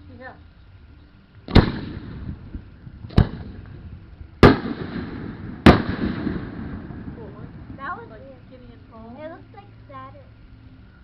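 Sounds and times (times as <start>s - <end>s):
firework bangs with echo: 1.5s - 3.8s, 4.4s - 8.3s.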